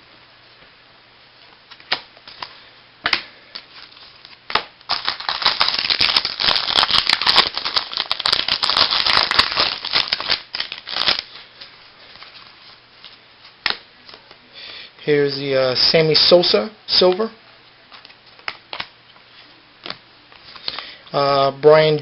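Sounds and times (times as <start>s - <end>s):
wrapper crackling and tearing: 3.8s - 11.6s.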